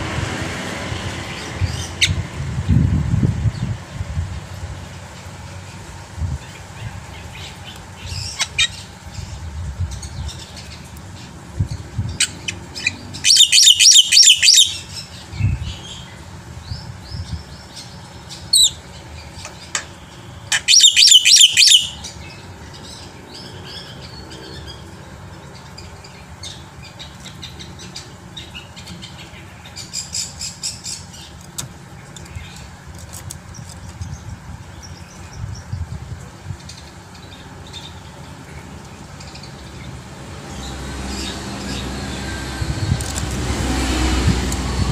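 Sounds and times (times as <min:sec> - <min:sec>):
myna singing chirps and whistles: 0:12.8 - 0:15.0, 0:20.6 - 0:22.1.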